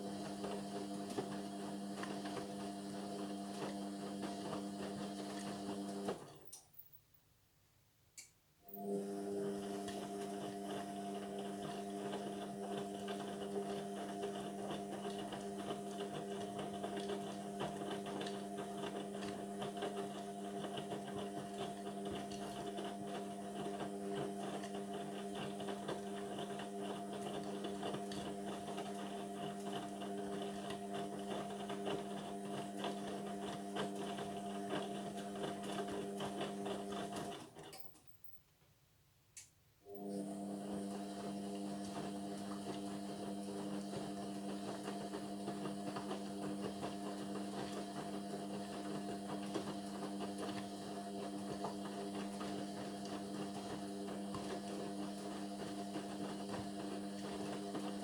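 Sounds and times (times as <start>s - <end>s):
washing machine humming: 0.0s - 6.6s, 8.6s - 38.0s, 39.8s - 58.0s.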